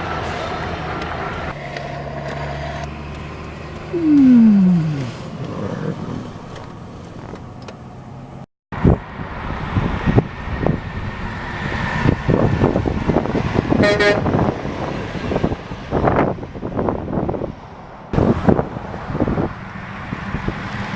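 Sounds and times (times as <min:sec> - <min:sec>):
road traffic: 0:00.0 - 0:20.9
vehicle horn toot: 0:13.8 - 0:14.3.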